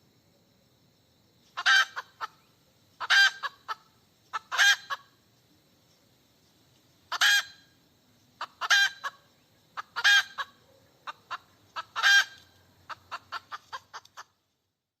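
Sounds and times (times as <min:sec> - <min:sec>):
hen clucking: 0:01.6 - 0:02.4, 0:03.0 - 0:05.1, 0:07.1 - 0:07.6, 0:08.4 - 0:14.4.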